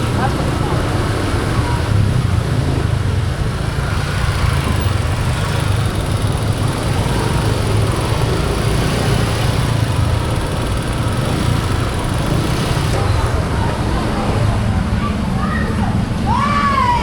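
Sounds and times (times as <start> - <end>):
motor scooter engine running: 0.0 - 14.4
road noise: 0.0 - 17.0.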